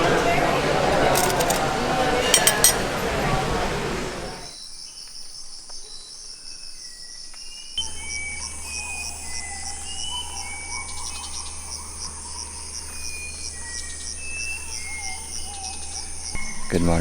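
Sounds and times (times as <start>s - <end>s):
wavering call: 0.0s - 4.5s, 7.8s - 17.0s
whistled bird calls: 0.0s - 17.0s
insects trilling and chirping: 3.6s - 17.0s
low hum: 7.8s - 17.0s.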